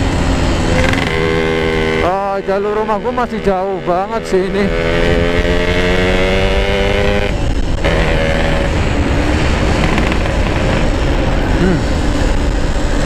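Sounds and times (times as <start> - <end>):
two-stroke motorcycle engine: 0.0 - 13.0
wind rumble on microphone: 4.6 - 13.0.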